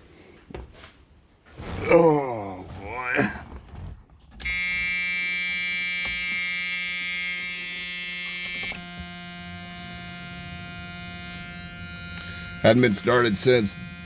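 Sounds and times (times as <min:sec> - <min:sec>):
electric buzz: 0:04.4 - 0:14.0.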